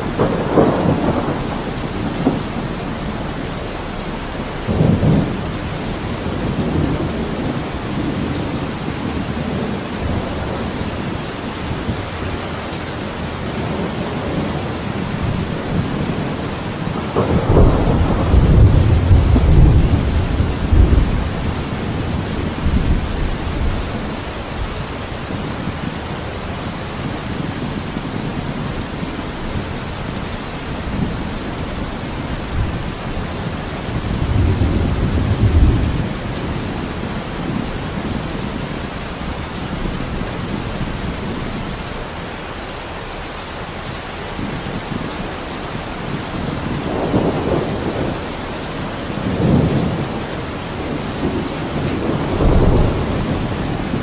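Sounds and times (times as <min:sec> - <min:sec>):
heavy rain: 0:00.0 - 0:54.0
thunder rumbling: 0:00.0 - 0:54.0.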